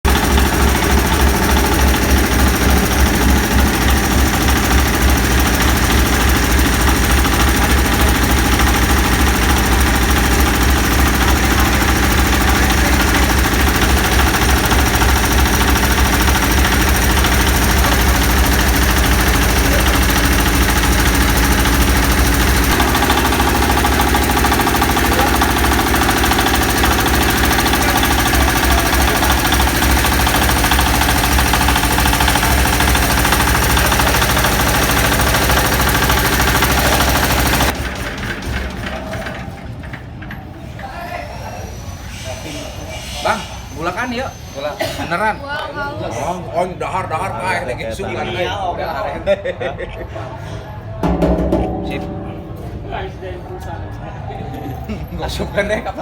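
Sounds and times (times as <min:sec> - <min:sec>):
hammer mill grinder knocking: 0:00.0 - 0:40.5, 0:51.0 - 0:54.0
diesel engine running: 0:00.0 - 0:40.7.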